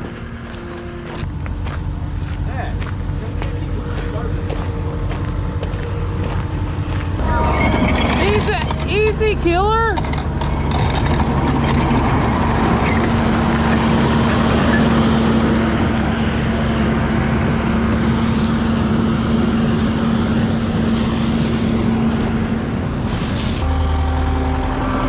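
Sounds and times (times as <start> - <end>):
diesel engine humming: 0.0 - 25.0
metallic rattles: 7.2 - 23.6.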